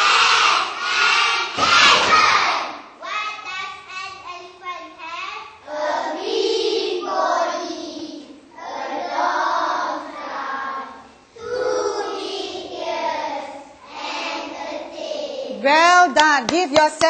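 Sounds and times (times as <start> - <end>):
children singing in unison: 0.0 - 2.8, 5.6 - 15.5.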